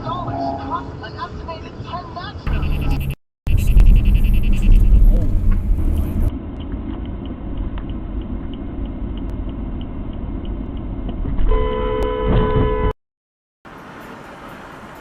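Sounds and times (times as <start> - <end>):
car engine and road rumble: 0.0 - 12.9, 13.7 - 15.0
car horn blaring: 2.5 - 3.2, 11.5 - 13.0.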